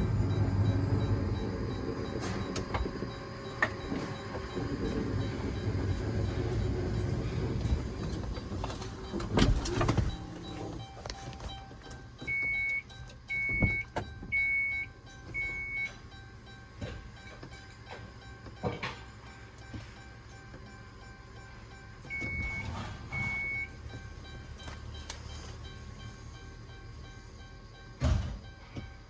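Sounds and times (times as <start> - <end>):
motorised mechanism rumbling: 0.0 - 14.4
heavy door thump: 28.0 - 28.4.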